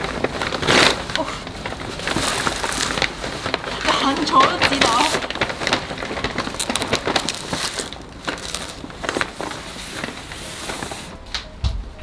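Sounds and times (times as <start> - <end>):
sharp crackles: 0.0 - 11.4
packaging crinkling and rustling: 0.0 - 11.6.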